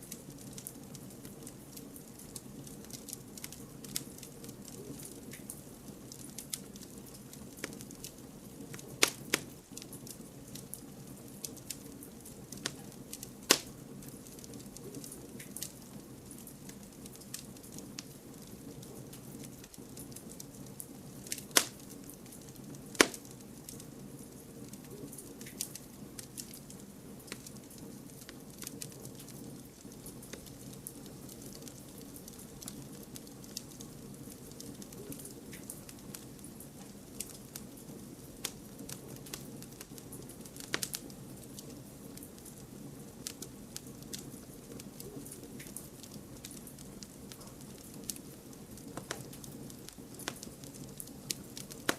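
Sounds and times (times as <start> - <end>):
campfire crackling: 0.0 - 51.9
sharp loud pops of fire: 9.0 - 9.5, 13.5 - 13.7, 21.4 - 21.8, 22.9 - 23.3.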